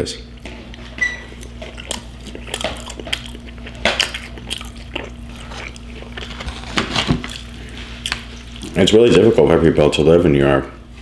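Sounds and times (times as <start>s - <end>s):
wet squishy chewing: 0.3s - 9.0s.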